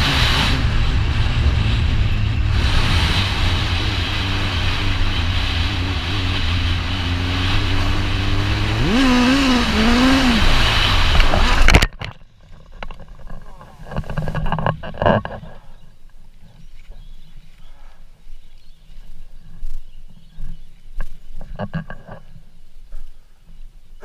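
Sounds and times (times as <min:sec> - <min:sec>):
motorcycle engine revving: 0:00.0 - 0:12.0
constant low rumble: 0:00.0 - 0:24.0.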